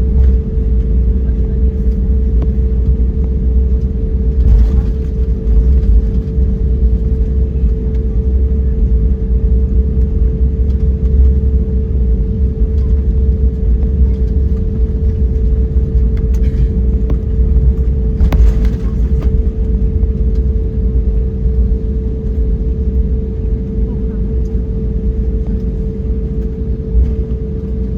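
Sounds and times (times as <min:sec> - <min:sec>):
aircraft cabin engine drone: 0:00.0 - 0:27.9.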